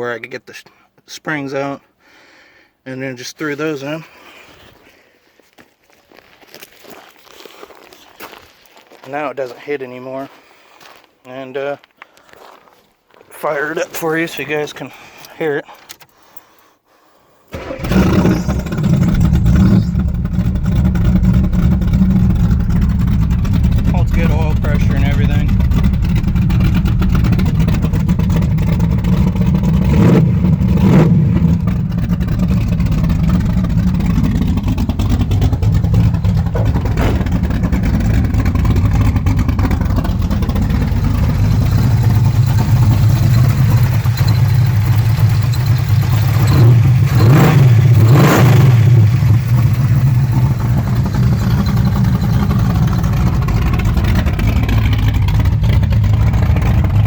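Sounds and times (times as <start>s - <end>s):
car engine idling and revving: 17.5s - 57.0s.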